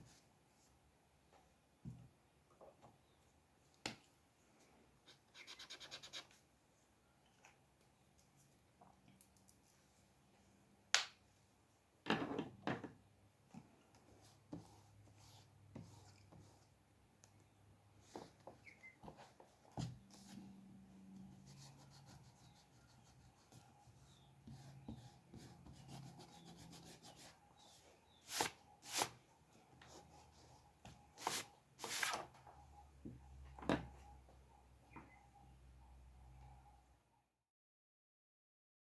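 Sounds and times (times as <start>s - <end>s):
scratchy rubbing strokes on paper: 5.1s - 6.4s, 21.3s - 29.2s.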